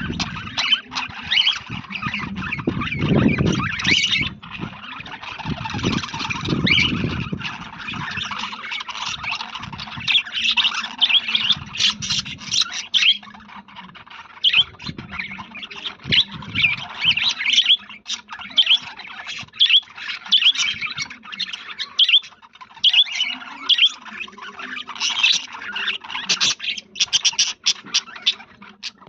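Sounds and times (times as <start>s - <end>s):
budgerigars chattering: 0.0s - 29.0s.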